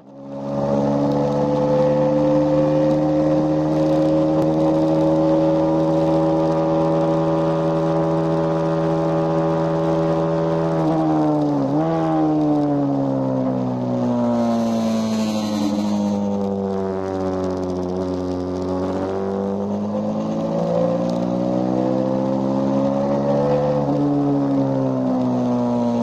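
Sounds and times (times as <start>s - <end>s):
motorcycle engine revving hard: 0.3s - 16.5s.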